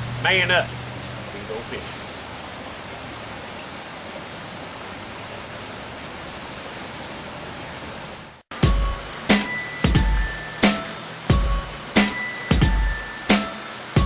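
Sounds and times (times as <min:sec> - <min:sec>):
creek water rushing: 0:00.0 - 0:14.0
music with struck note: 0:08.6 - 0:14.0.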